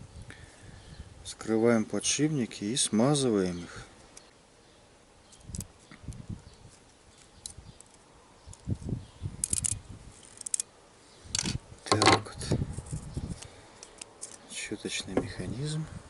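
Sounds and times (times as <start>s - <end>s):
sharp metal clicks: 9.4s - 10.7s.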